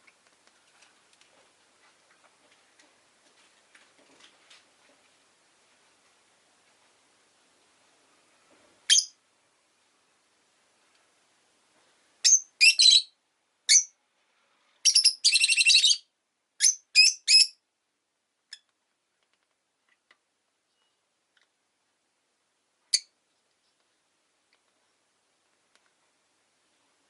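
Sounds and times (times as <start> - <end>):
lovebird chirping: 8.9 - 9.2, 12.2 - 14.0, 14.8 - 17.6, 22.9 - 23.2.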